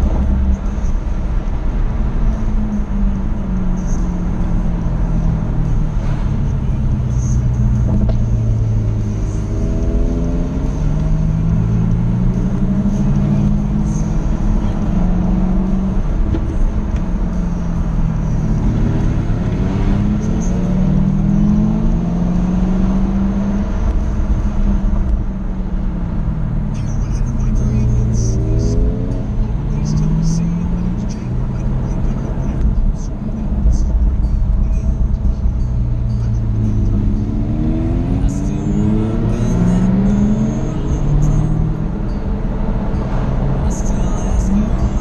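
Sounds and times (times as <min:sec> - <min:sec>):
low road rumble: 0:00.0 - 0:45.0
car engine revving hard: 0:03.2 - 0:25.2, 0:36.0 - 0:45.0.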